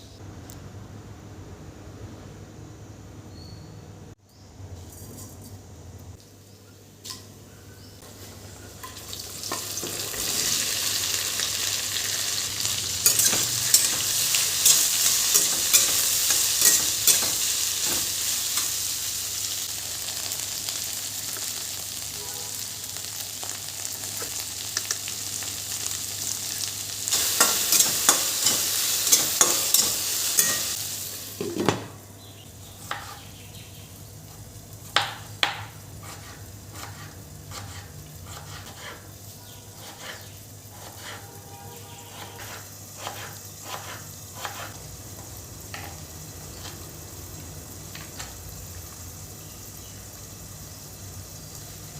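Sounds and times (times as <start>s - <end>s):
food sizzling in a pan: 8.0s - 32.1s, 32.7s - 51.9s
spoon scraping a pan: 12.0s - 19.0s, 27.1s - 30.8s, 32.8s - 33.3s, 35.6s - 46.9s.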